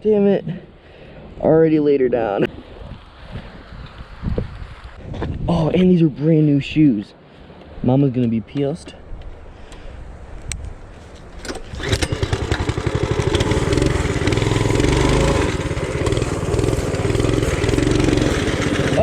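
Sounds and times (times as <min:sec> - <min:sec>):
small motorbike engine starting: 0:11.4 - 0:19.0.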